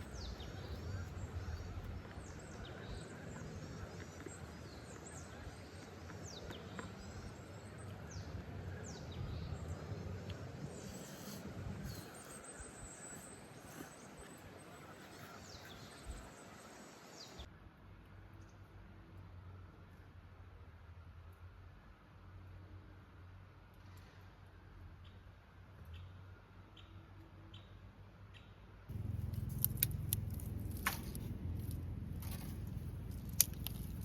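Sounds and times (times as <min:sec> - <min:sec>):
birds chirping: 0:00.0 - 0:17.5
faint background rumble: 0:28.9 - 0:34.0.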